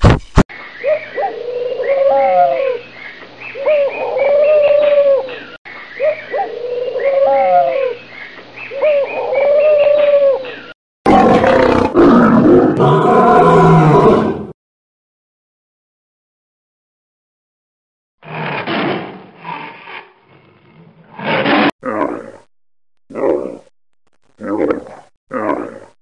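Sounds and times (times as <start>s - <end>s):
pigeon cooing: 0.9s - 2.8s, 3.6s - 8.0s, 8.8s - 10.5s
lion roaring: 11.1s - 14.5s, 18.2s - 22.5s, 23.1s - 23.7s, 24.4s - 26.0s.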